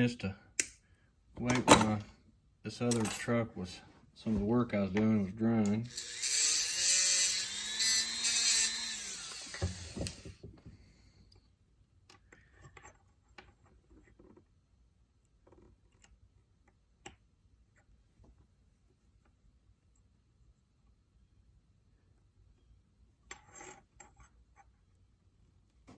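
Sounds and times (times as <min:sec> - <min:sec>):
small power tool running: 0:05.9 - 0:10.4.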